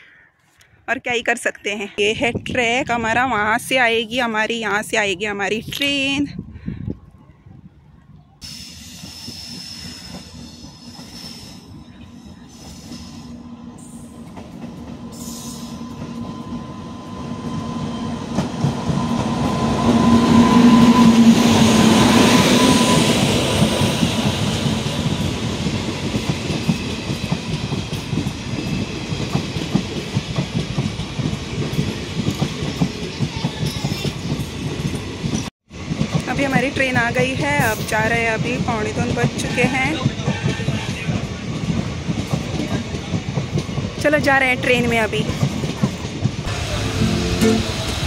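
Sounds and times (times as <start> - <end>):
train wheels clickety-clack: 8.5 - 13.4, 14.1 - 16.7, 17.4 - 48.0
electric locomotive hum and rumble: 34.6 - 48.0.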